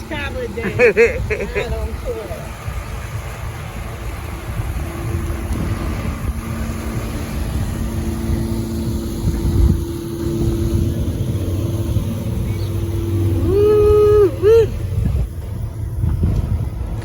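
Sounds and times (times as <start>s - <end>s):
faint hum: 0.0s - 17.0s
road and engine rumble: 0.0s - 17.0s.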